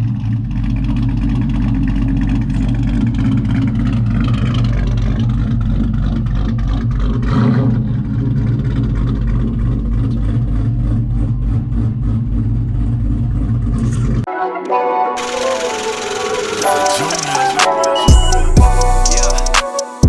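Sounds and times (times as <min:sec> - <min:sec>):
truck engine rumbling: 0:00.0 - 0:14.3.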